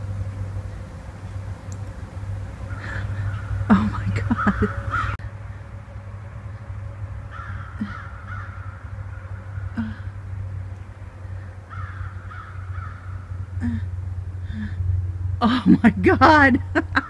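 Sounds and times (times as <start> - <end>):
steady low rumble: 0.0 - 17.0
large birds calling harshly: 2.5 - 5.6, 6.6 - 14.6.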